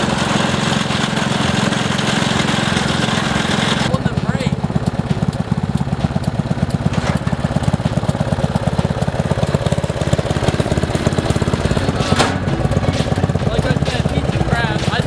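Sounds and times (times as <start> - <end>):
lawn tractor engine running: 0.0 - 15.0
brief clatter: 11.9 - 13.1.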